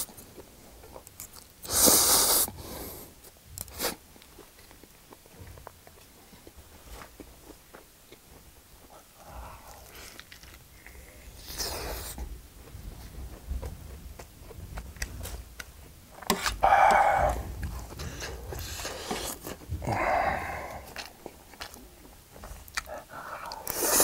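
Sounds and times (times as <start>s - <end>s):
close chewing: 3.2s - 24.0s
loud breaths through full mouth: 16.6s - 21.0s.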